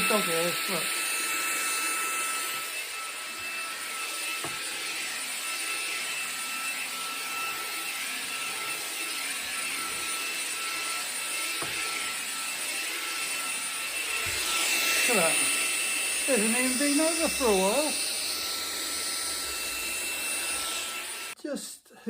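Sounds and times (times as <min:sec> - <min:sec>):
handheld vacuum running on carpet: 0:00.0 - 0:21.4.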